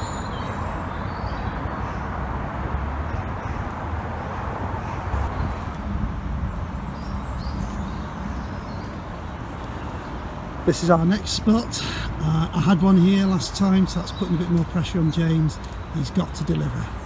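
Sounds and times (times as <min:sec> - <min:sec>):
faint bird chirps: 0:05.3 - 0:17.0.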